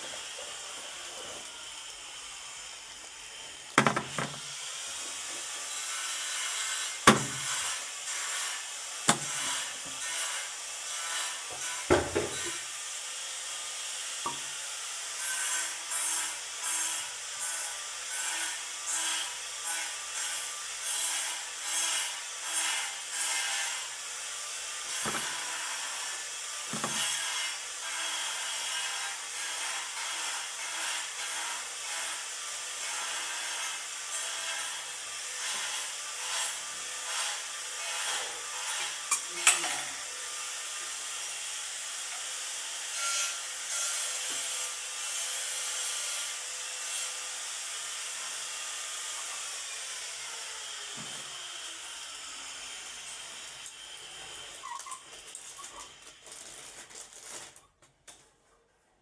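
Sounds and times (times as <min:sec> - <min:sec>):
hand tool scraping strokes: 0:00.0 - 0:12.7, 0:14.3 - 0:17.0, 0:19.6 - 0:32.2, 0:32.8 - 0:47.0.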